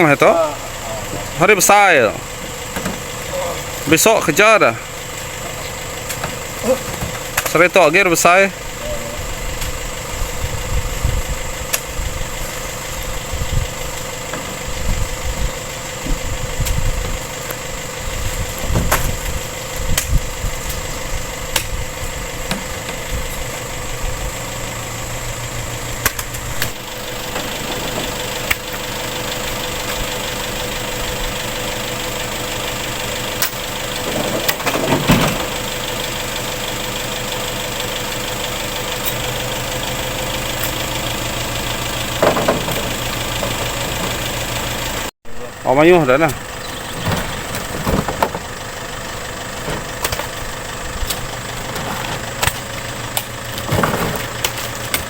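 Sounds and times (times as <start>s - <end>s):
engine running: 0.0s - 55.0s
low rumbling thumps: 9.2s - 17.2s, 18.0s - 24.3s.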